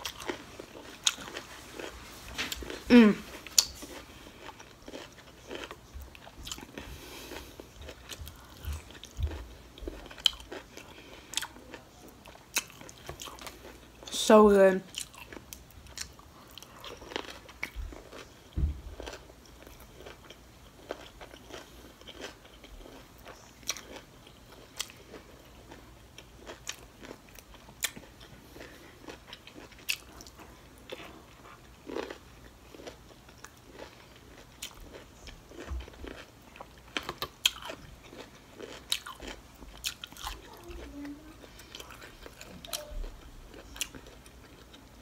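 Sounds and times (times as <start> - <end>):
crunchy chewing with mouth clicks: 0.0 - 14.1, 14.9 - 45.0.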